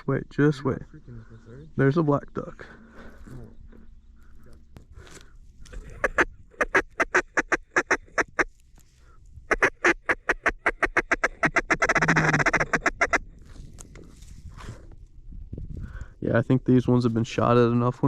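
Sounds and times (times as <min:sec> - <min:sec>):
rapid duck call chatter: 0:05.7 - 0:08.5, 0:09.5 - 0:13.2
duck call quacks: 0:05.8 - 0:08.5, 0:09.5 - 0:13.2.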